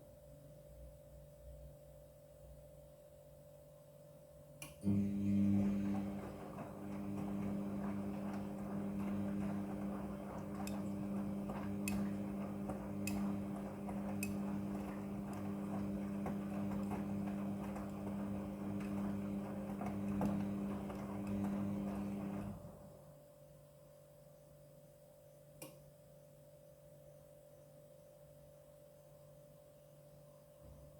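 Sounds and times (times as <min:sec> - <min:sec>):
washing machine motor hum: 0:04.8 - 0:23.2
drum churning: 0:05.6 - 0:22.7.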